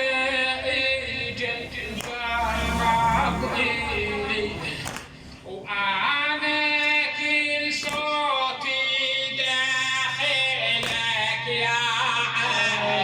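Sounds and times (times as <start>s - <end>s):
steady low drone: 0.0s - 5.8s
man singing a lament: 0.0s - 13.0s.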